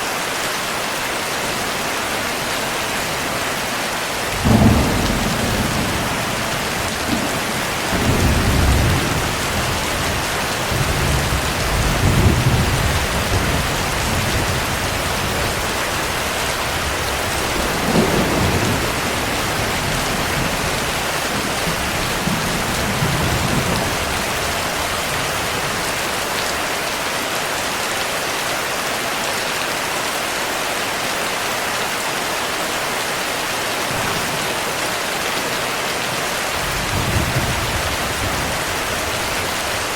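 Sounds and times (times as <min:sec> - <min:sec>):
heavy rain: 0:00.0 - 0:39.9
thunder rumbling: 0:02.2 - 0:26.3, 0:36.6 - 0:39.9.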